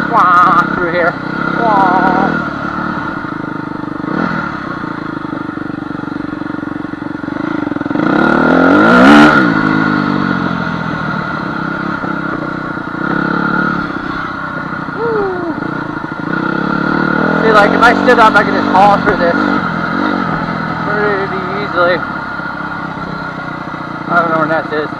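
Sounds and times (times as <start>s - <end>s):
dirt bike engine revving: 0.0s - 24.9s.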